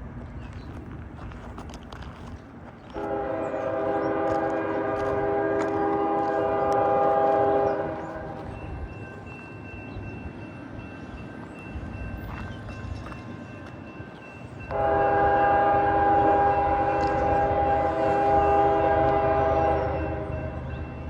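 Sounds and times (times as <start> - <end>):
low rumble of passing train: 0.0 - 21.0
locomotive air horn blast: 3.0 - 8.3, 14.7 - 20.5.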